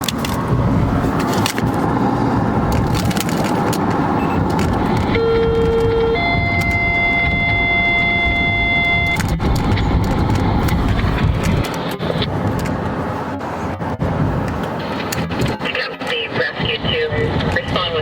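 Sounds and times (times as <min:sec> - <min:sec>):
steady low rumble: 0:00.0 - 0:18.0
two-tone dispatch alert: 0:04.2 - 0:10.6
clicks: 0:08.4 - 0:12.9.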